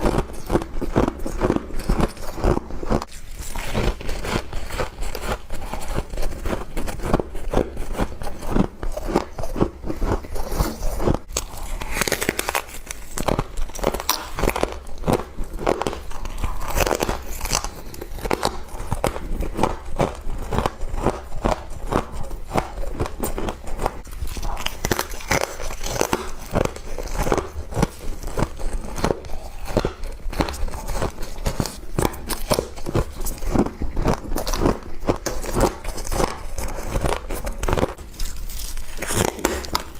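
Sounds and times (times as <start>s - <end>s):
frost crunching when chewed: 0.0s - 39.9s.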